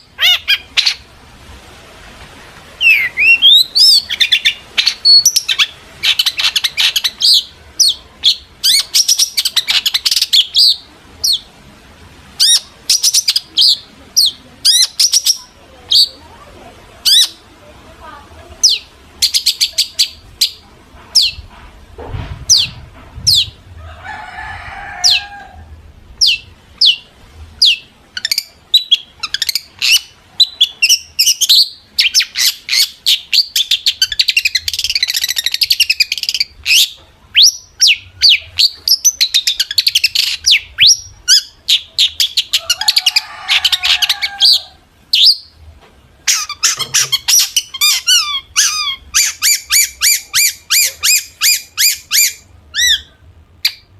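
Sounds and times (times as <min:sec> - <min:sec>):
bird chattering: 0:00.0 - 0:01.1, 0:02.8 - 0:11.5, 0:12.4 - 0:16.4, 0:17.0 - 0:17.5, 0:18.6 - 0:21.5, 0:26.2 - 0:45.6, 0:46.2 - 0:53.9
shrike singing whistled notes: 0:02.8 - 0:04.6
harsh rasping bird phrases: 0:46.3 - 0:53.2.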